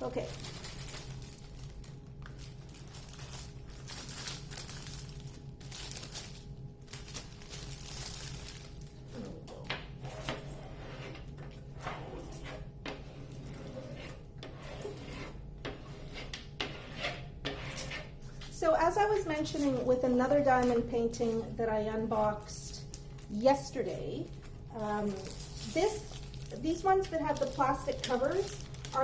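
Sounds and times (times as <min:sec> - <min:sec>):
plastic film rustling: 0:00.0 - 0:09.4, 0:18.2 - 0:29.0.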